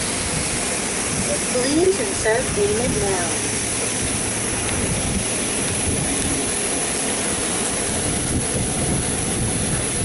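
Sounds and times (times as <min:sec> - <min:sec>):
car wash rushing noise: 0:00.0 - 0:10.0.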